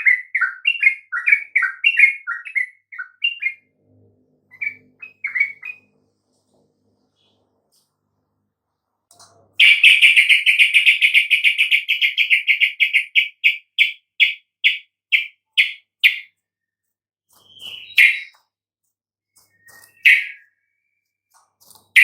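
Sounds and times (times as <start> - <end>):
bird calling with clear notes: 0.0 - 3.7, 4.5 - 6.0, 9.6 - 18.5, 19.3 - 22.0.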